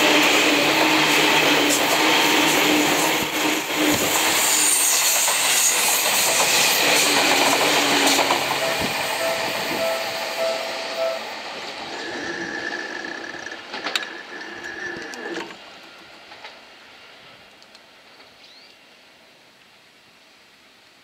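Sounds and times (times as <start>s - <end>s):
train motor whine: 0.0s - 16.5s
electric train rumbling and rattling: 0.0s - 18.6s.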